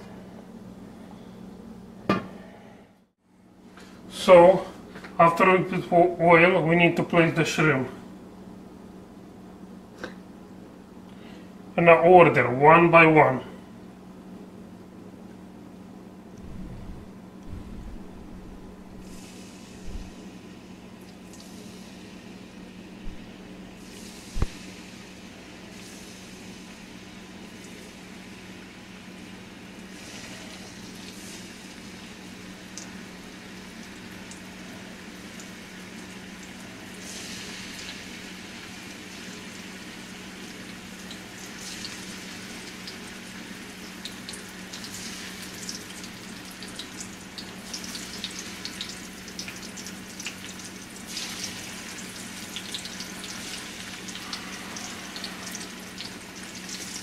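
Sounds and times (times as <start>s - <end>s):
steady low hum: 0.0s - 47.1s
shrimp sizzling in frying pan: 23.8s - 57.0s.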